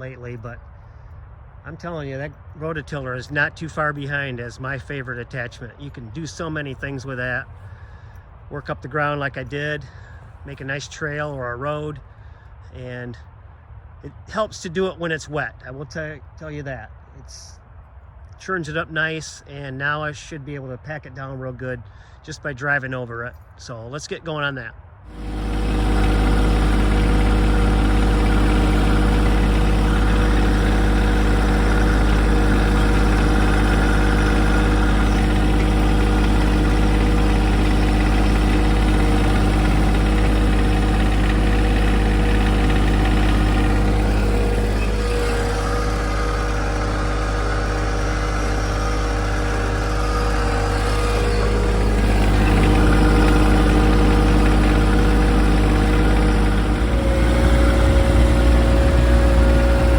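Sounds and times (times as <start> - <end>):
tractor diesel engine running: 25.1 - 59.9.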